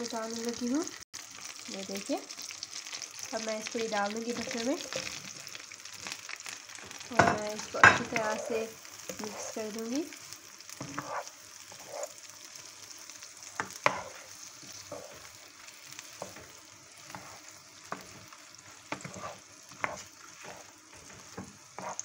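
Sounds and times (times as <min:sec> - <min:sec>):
vegetables sizzling in a frying pan: 0:00.0 - 0:22.0
spatula scraping and knocking pan: 0:06.8 - 0:09.9, 0:10.7 - 0:12.2, 0:13.6 - 0:22.0.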